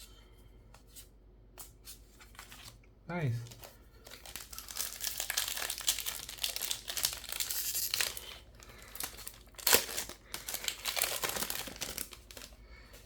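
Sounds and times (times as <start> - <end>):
plastic wrapper crinkling: 3.4 - 13.0.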